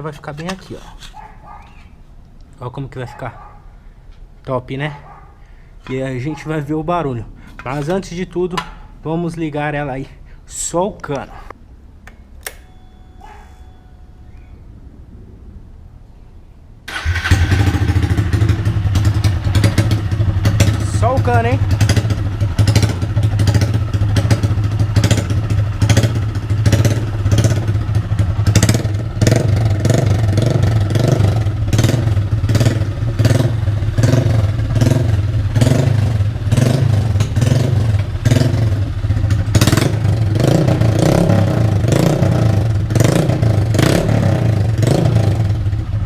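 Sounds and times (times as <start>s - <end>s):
loud motorcycle engine running: 16.9s - 46.0s
sharp exhaust cracks: 16.9s - 46.0s.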